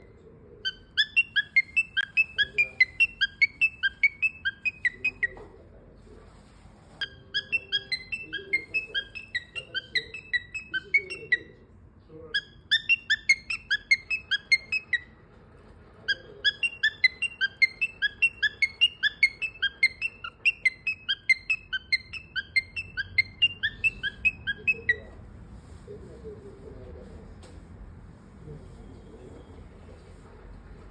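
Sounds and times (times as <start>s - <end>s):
parrot chirping: 0.0s - 5.5s, 7.0s - 11.6s, 12.2s - 15.2s, 16.0s - 25.2s.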